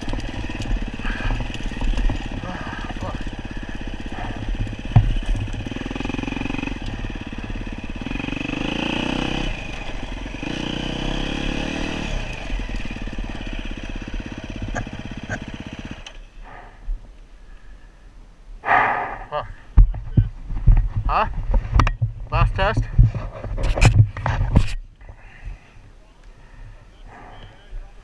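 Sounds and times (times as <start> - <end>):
dirt bike engine revving: 0.0 - 16.2.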